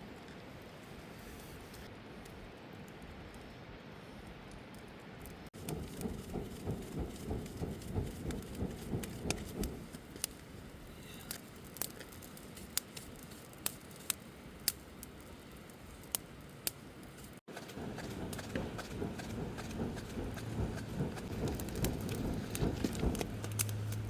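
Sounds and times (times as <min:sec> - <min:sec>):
campfire crackling: 0:00.0 - 0:24.0
low rustling thuds: 0:05.6 - 0:09.9, 0:17.8 - 0:24.0.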